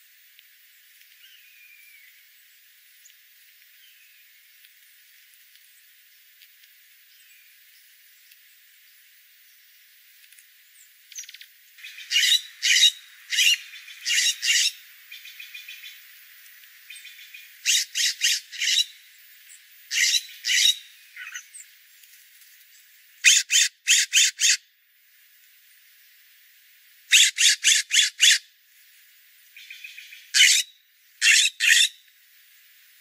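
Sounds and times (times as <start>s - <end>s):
faint bird chatter: 10.8s - 16.1s, 16.8s - 21.9s, 22.7s - 24.6s, 27.1s - 28.4s, 29.5s - 32.0s
loud bird calls: 11.2s - 16.0s, 16.9s - 19.1s, 19.9s - 21.7s, 23.2s - 24.6s, 27.1s - 28.4s, 29.6s - 32.0s.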